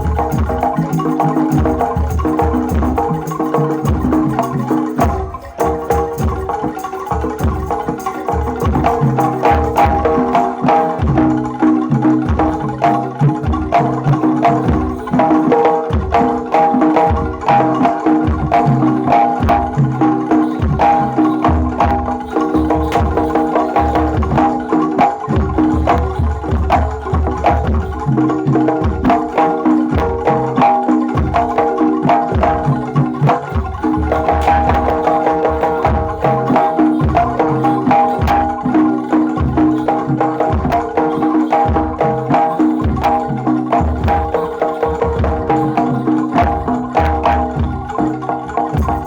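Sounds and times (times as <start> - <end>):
pitched metal percussion: 0.0 - 49.0
sustained melodic tones: 0.0 - 49.0
deep drum beating: 32.3 - 38.7.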